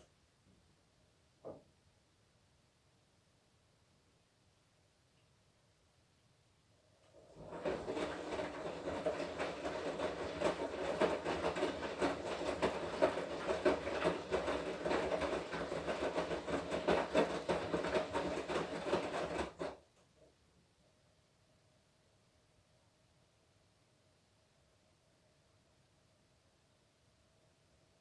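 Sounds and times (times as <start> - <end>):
washing machine drum tumbling: 7.3 - 19.8.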